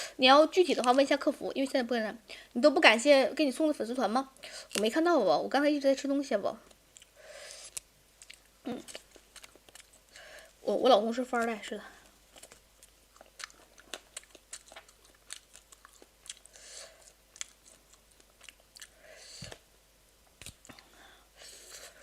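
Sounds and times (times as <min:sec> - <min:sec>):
wet chewing mouth clicks: 0:12.3 - 0:19.6.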